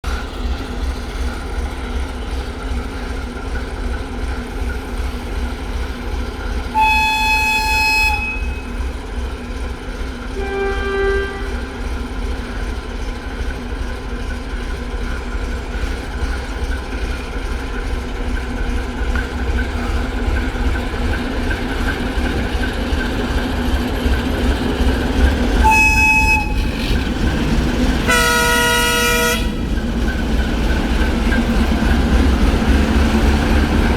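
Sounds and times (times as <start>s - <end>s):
diesel locomotive rumbling: 0.0s - 33.9s
locomotive horn blasts: 6.7s - 8.8s, 10.4s - 11.9s, 25.6s - 27.0s, 28.0s - 29.7s.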